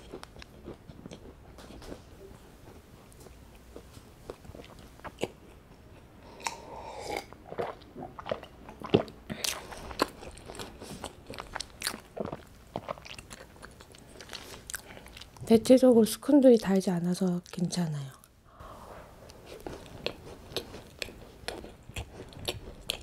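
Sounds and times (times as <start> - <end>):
chewing with mouth clicks: 2.6 - 15.4, 19.3 - 23.0.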